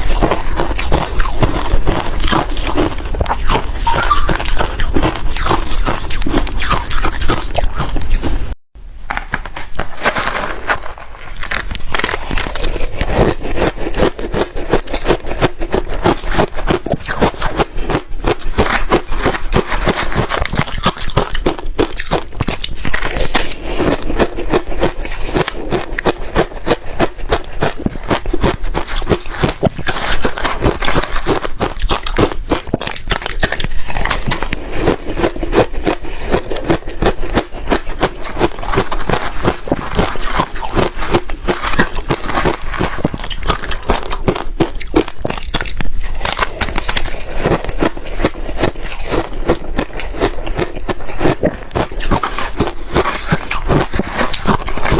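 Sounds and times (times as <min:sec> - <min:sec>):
ice crunching while chewed: 0:00.0 - 0:08.5, 0:09.7 - 0:54.9.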